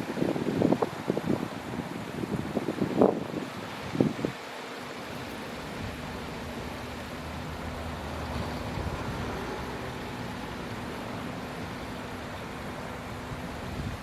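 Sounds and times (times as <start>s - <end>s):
low rumble and hiss: 5.0s - 14.0s.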